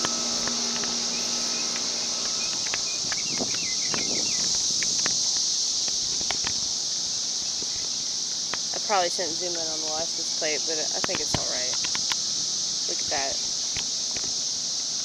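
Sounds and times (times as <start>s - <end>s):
light clicks: 0.0s - 6.6s
cicadas buzzing: 0.0s - 15.0s.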